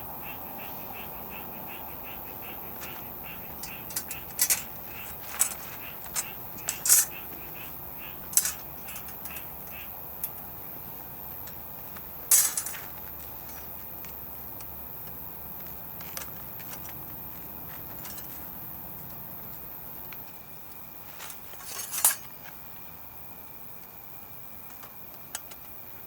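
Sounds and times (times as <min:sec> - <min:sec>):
frogs calling: 0:00.0 - 0:22.2
sharp clinks and knocks: 0:03.5 - 0:07.4, 0:08.3 - 0:09.8, 0:12.3 - 0:12.9, 0:21.2 - 0:22.3.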